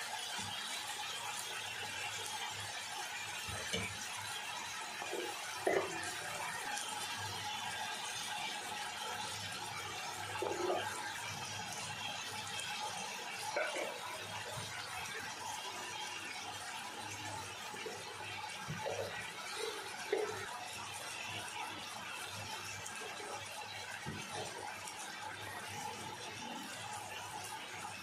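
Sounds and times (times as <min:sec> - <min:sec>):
beans sizzling in oil: 0:00.0 - 0:28.0.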